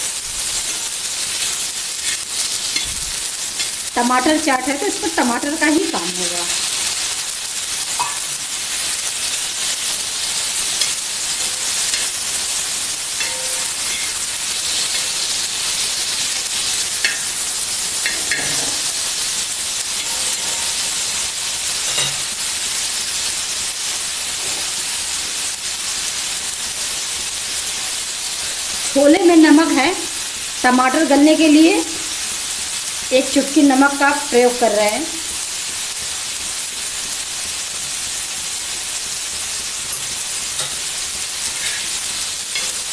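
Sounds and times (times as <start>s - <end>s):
tomatoes sizzling in oil: 0.0s - 42.9s
spatula scraping and tapping: 13.2s - 14.2s, 18.0s - 18.8s, 21.9s - 22.2s, 41.6s - 42.0s.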